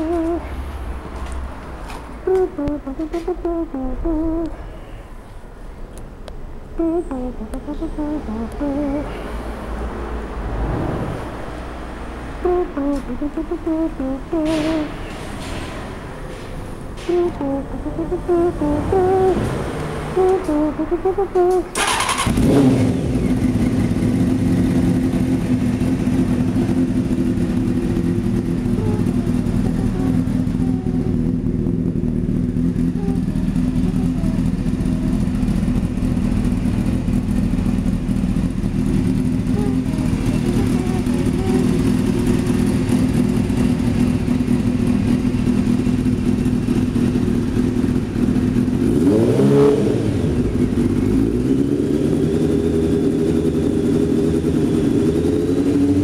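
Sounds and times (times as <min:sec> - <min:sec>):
motorcycle engine revving: 0:17.1 - 0:56.0
motorcycle engine idling: 0:21.4 - 0:49.3, 0:50.0 - 0:56.0.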